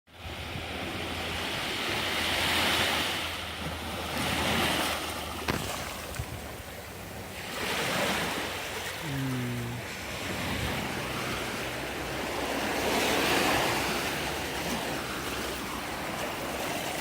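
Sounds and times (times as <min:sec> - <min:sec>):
sea waves washing ashore: 0:00.1 - 0:17.0
wind rumbling on microphone: 0:05.4 - 0:17.0.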